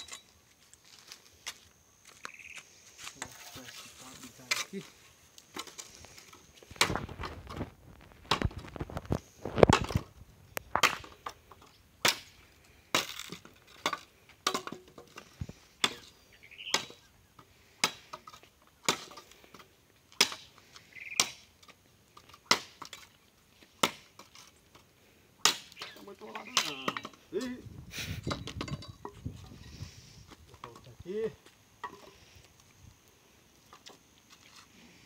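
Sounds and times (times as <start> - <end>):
dry branches cracking and knocking: 4.4 - 16.0.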